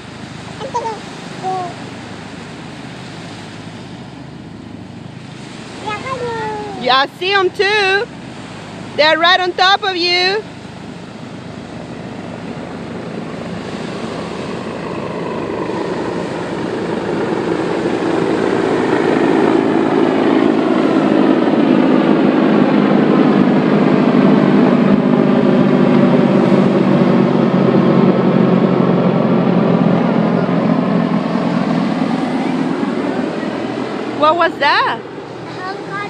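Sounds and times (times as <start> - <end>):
helicopters flying overhead: 0.0 - 36.0.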